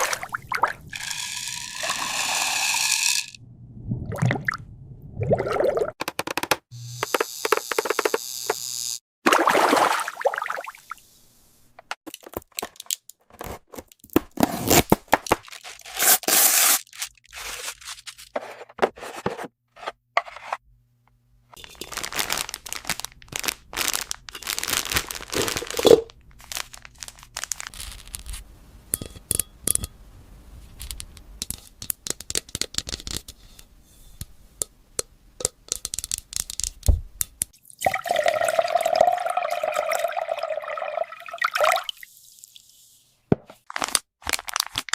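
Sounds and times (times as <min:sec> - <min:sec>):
steady buzzing tone: 0:06.8 - 0:09.0
packaging being torn and crinkled: 0:21.7 - 0:28.4, 0:43.6 - 0:44.9
plastic toy pieces clicking: 0:35.4 - 0:37.5.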